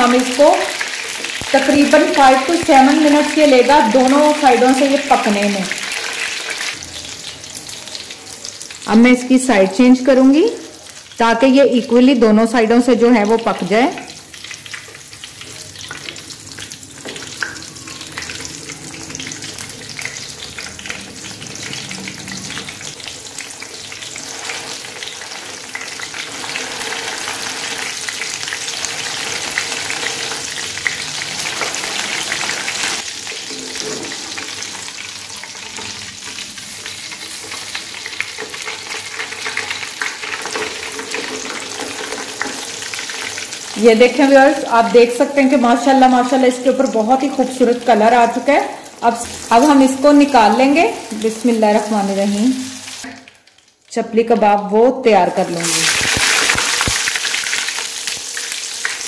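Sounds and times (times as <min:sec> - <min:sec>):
patty sizzling in hot oil: 0:00.0 - 0:11.6, 0:12.8 - 0:53.8, 0:55.2 - 0:59.0
metal spatula scraping a pan: 0:24.0 - 0:36.4.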